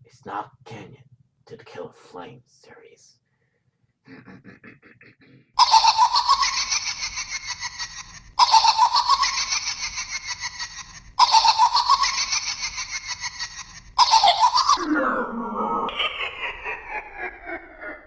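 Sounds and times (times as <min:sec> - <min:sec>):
looped recorded laughter: 0:04.1 - 0:18.0.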